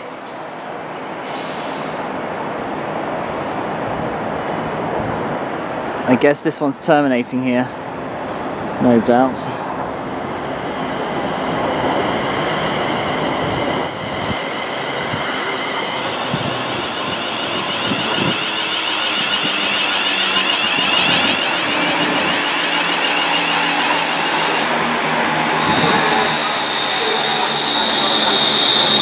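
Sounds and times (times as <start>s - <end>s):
train wheels rumbling on rails: 7.8s - 29.0s
high whine: 10.2s - 29.0s.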